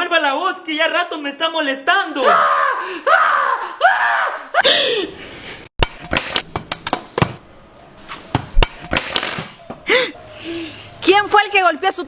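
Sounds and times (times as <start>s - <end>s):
sharp whacks and thumps: 5.8s - 7.4s, 8.0s - 9.8s.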